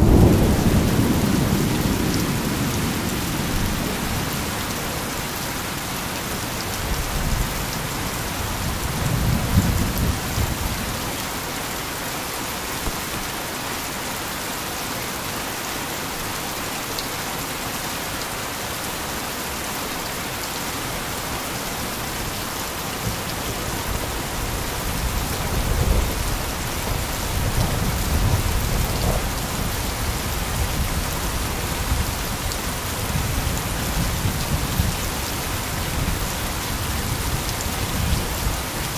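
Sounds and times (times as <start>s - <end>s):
thunder rumbling: 0.0s - 4.7s, 23.0s - 35.0s
heavy rain falling: 0.0s - 38.9s.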